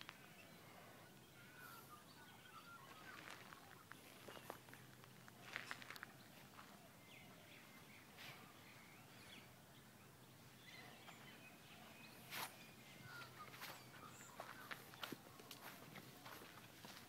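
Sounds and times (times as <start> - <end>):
distant bird chirps: 0.0 - 17.0
soft footsteps: 2.9 - 8.6, 10.8 - 17.0.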